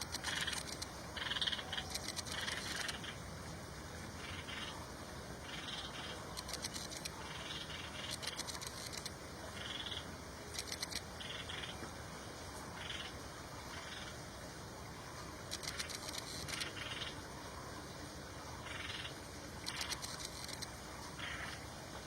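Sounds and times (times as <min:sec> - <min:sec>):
rapid high-pitched clicking: 0:00.0 - 0:03.0, 0:05.6 - 0:09.8, 0:10.5 - 0:11.6, 0:15.5 - 0:17.1, 0:19.6 - 0:20.7.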